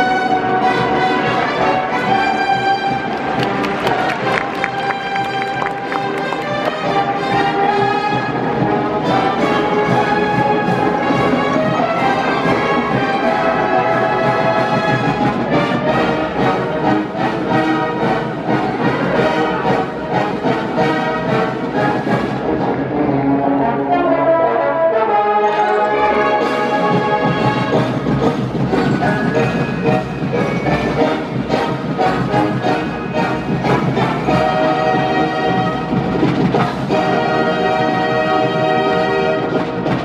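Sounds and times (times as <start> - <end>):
brass instruments: 0.0 - 40.0
wind band playing: 0.0 - 40.0
percussion beat: 2.9 - 8.0, 26.8 - 37.2.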